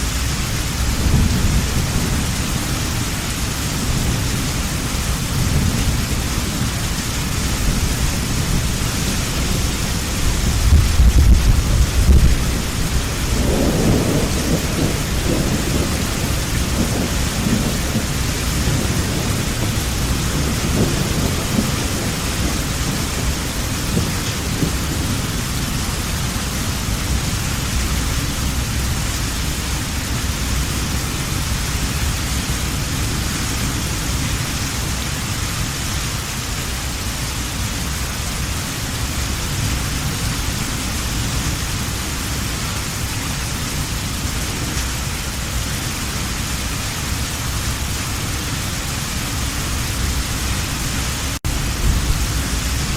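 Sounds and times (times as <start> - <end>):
heavy rain: 0.0 - 52.9
thunder rolling: 0.1 - 29.1, 49.3 - 52.9.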